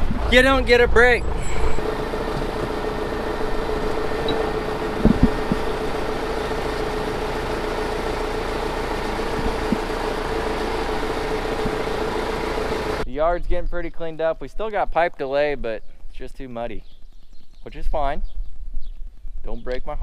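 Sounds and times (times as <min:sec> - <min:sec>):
vehicle engine humming: 0:00.0 - 0:13.1.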